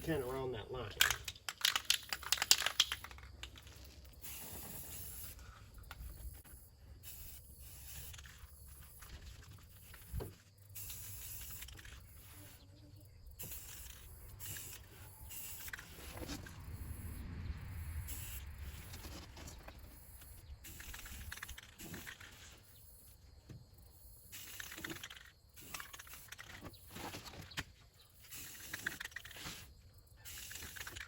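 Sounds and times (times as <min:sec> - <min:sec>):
spray paint can hissing: 0:01.6 - 0:05.4, 0:06.0 - 0:12.6, 0:13.4 - 0:16.5, 0:18.0 - 0:19.1, 0:20.0 - 0:23.1, 0:24.2 - 0:26.6, 0:28.2 - 0:31.0.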